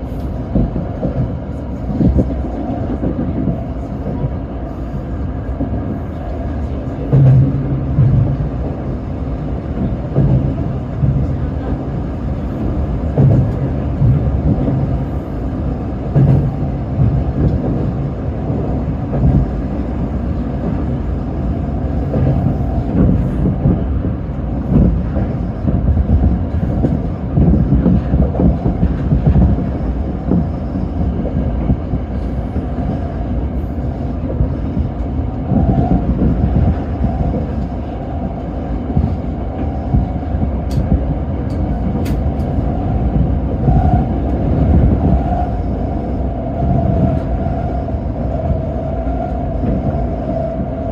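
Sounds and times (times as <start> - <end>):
electric train wheels rumbling on track: 0.0 - 50.9.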